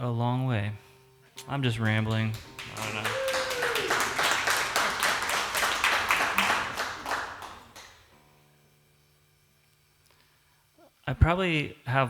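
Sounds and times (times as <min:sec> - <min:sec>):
quiet room hum: 0:00.0 - 0:12.0
audience applauding: 0:01.8 - 0:08.1.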